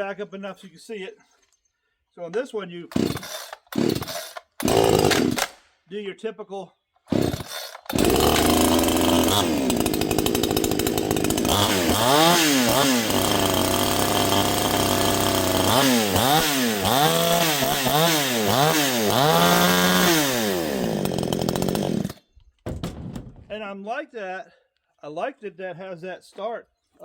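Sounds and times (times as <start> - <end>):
chainsaw idling and revving: 2.9 - 5.6, 7.1 - 22.3.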